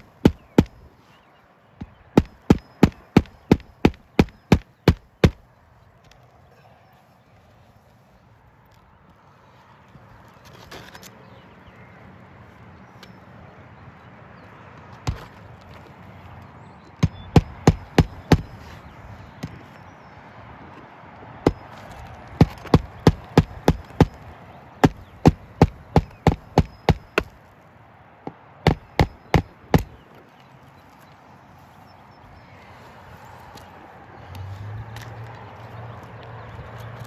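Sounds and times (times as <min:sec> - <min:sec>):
hammer striking nails: 0:00.0 - 0:00.8, 0:02.2 - 0:05.4, 0:17.0 - 0:18.6, 0:22.4 - 0:24.2, 0:24.8 - 0:27.3, 0:28.6 - 0:30.0.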